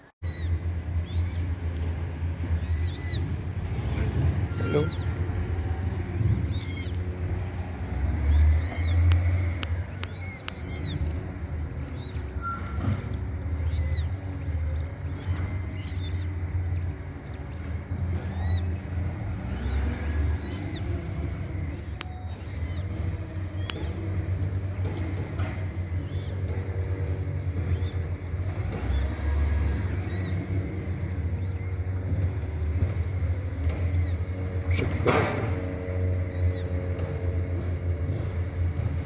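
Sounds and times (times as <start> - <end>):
steady low rumble: 0.2 - 39.0
ducklings peeping: 2.4 - 12.4, 13.1 - 24.0.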